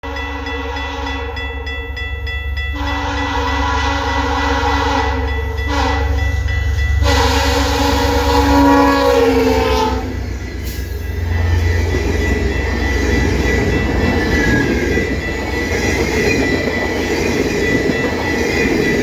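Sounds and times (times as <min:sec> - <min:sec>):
train horn blasts: 0:00.0 - 0:01.5, 0:02.7 - 0:06.4, 0:07.0 - 0:10.8
diesel locomotive rumble: 0:02.7 - 0:19.0.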